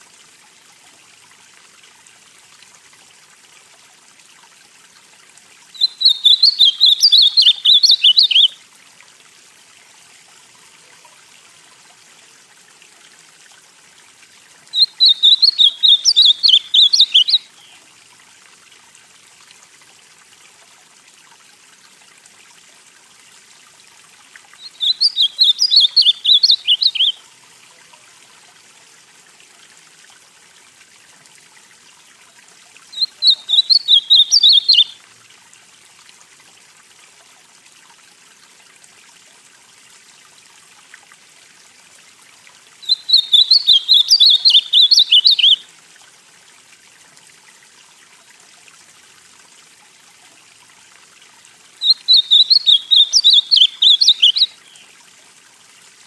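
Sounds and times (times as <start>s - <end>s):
faint steady hiss: 0.0s - 56.0s
bird singing warbled phrases: 5.7s - 8.6s, 14.7s - 17.8s, 24.6s - 27.2s, 32.9s - 35.0s, 42.8s - 45.6s, 51.8s - 54.9s.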